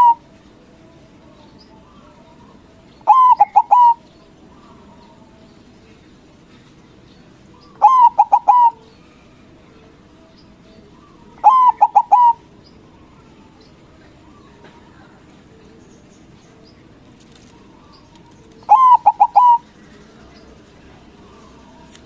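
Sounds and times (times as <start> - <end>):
dove cooing: 0.0 - 0.4, 2.0 - 5.0, 7.6 - 9.9, 10.8 - 15.6, 17.3 - 21.9.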